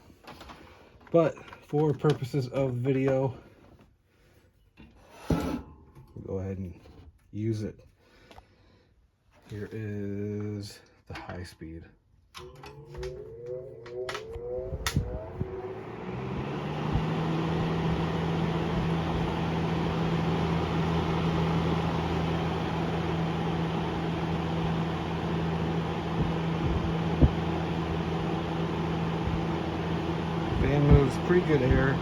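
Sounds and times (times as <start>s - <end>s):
box fan motor hum: 12.4s - 32.0s.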